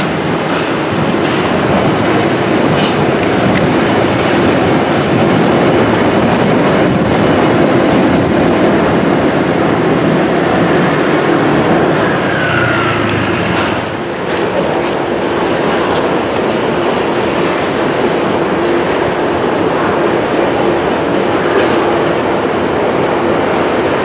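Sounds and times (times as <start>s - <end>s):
train wheels rumbling on track: 0.0s - 24.0s
falling squeal: 12.1s - 13.5s.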